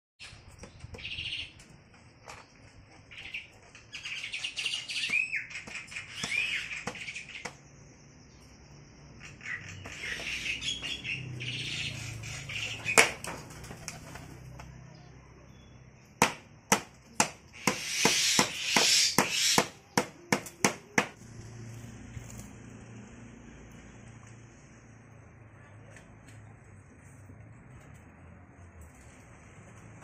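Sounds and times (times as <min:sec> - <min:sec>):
bird chirping: 0:00.2 - 0:16.2, 0:17.5 - 0:20.7.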